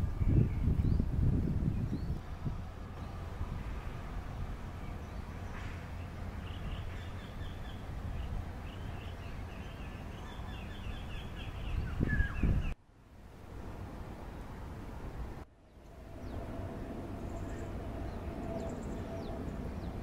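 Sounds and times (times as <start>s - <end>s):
low outdoor rumble: 0.0s - 20.0s
bird chirping: 4.8s - 12.8s, 17.2s - 20.0s.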